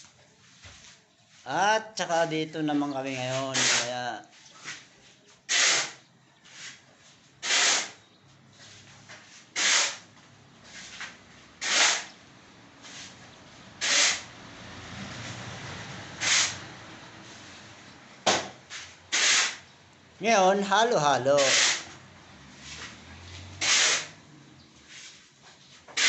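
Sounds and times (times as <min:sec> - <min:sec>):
shovel scraping through mortar: 0:03.3 - 0:04.9, 0:05.5 - 0:06.8, 0:07.4 - 0:08.0, 0:09.4 - 0:10.0, 0:10.7 - 0:12.2, 0:13.8 - 0:14.3, 0:16.2 - 0:16.6, 0:18.7 - 0:19.6, 0:21.4 - 0:21.9, 0:23.6 - 0:24.2.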